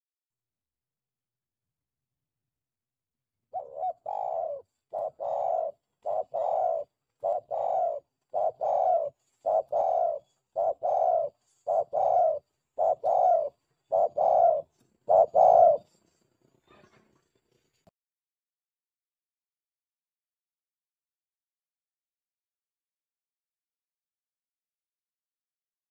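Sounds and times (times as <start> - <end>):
dove cooing: 3.5 - 17.0.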